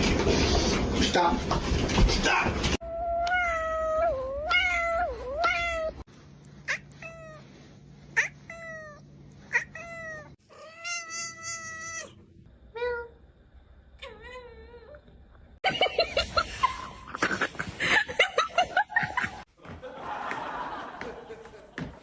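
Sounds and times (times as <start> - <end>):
cats meowing: 2.9 - 6.0, 6.6 - 7.5, 8.1 - 12.2.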